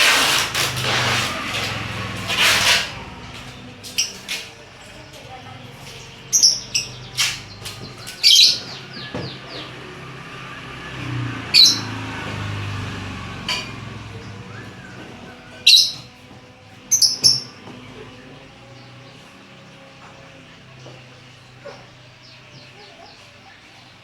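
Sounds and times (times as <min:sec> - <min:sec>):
lovebird chirps: 0:06.2 - 0:09.8.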